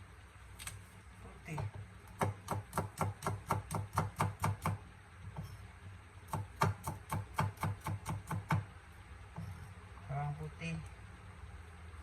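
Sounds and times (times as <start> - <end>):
knife chopping on cutting board: 1.5 - 5.4, 6.3 - 8.7.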